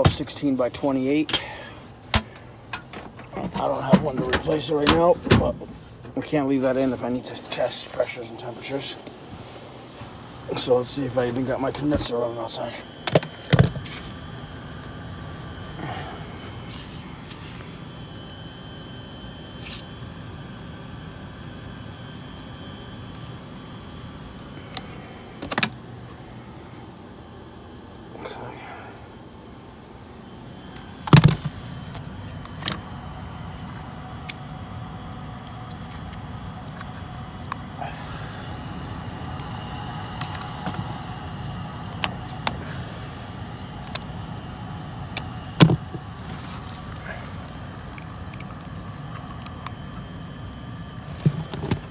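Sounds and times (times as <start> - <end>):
faint high whine: 0.0 - 51.9
steady machine hum: 0.0 - 51.9
low hum: 29.0 - 51.9.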